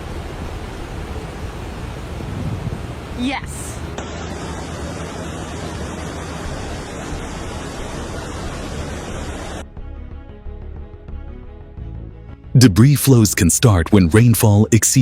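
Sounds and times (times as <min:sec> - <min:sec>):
rushing floodwater roar: 0:00.0 - 0:09.6
soft background music: 0:05.4 - 0:15.0.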